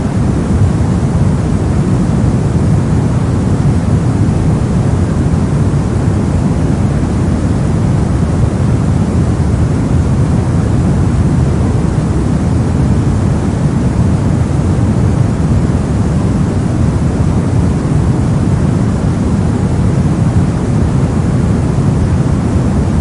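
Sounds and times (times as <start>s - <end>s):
low muffled rushing noise: 0.0s - 23.0s.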